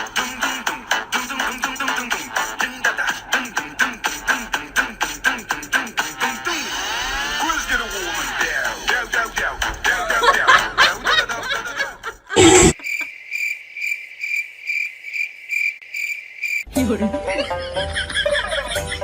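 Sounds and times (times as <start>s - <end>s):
music: 0.0s - 11.8s, 16.7s - 19.0s
cricket chirping: 12.4s - 16.7s.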